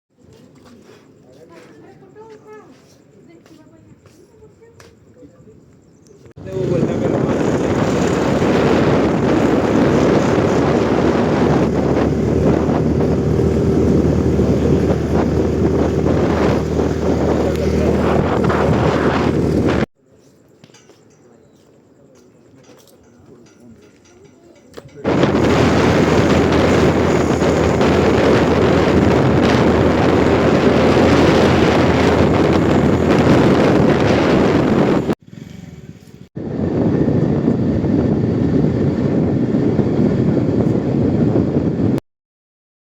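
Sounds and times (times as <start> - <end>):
wind buffeting microphone: 5.9 - 19.9, 23.0 - 42.0
vehicle engine rumble: 6.3 - 19.9, 23.2 - 38.9.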